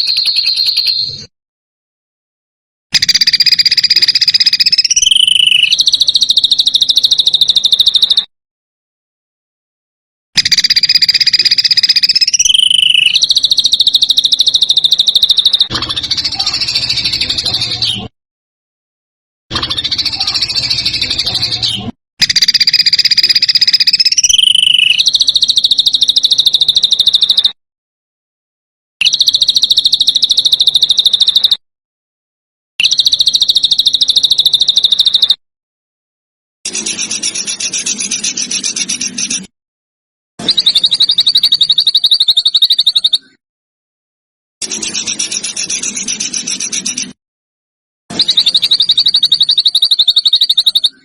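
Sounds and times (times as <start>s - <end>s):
songbird rattling trill: 0.0s - 1.1s, 3.0s - 8.3s, 10.4s - 17.6s, 19.6s - 27.6s, 29.0s - 31.6s, 32.8s - 35.4s, 40.5s - 43.2s, 48.2s - 50.9s.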